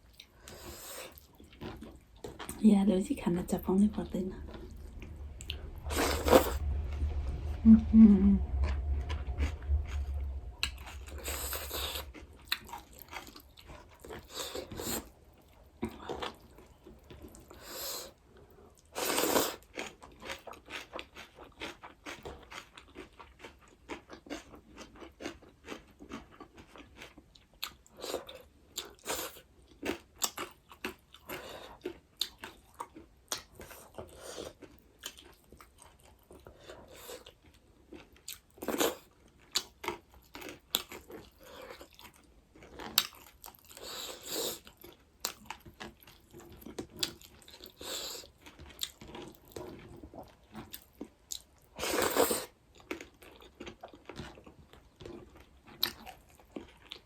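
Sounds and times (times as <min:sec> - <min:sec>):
loud noisy burst: 0:03.4 - 0:12.4.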